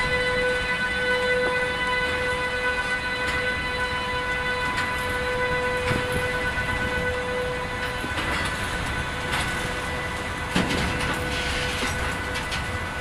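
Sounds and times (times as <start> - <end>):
wheels clacking over rail joints: 4.4 - 13.0.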